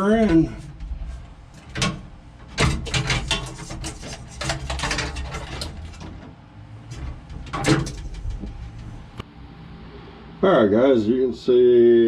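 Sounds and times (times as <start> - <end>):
metal knocks and clunks: 0.0 - 9.2.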